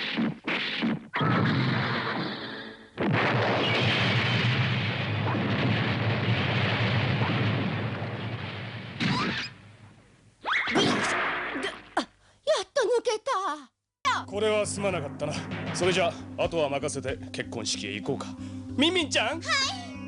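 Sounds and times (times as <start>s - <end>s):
explosion blast: 0.2s - 9.9s, 15.2s - 16.4s.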